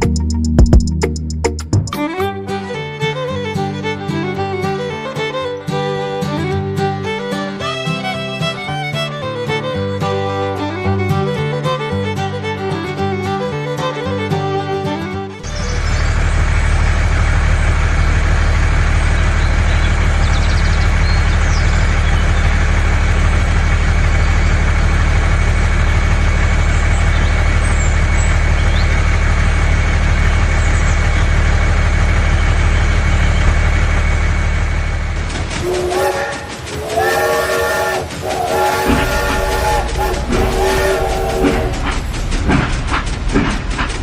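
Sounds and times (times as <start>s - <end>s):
engine idling: 15.4s - 44.0s.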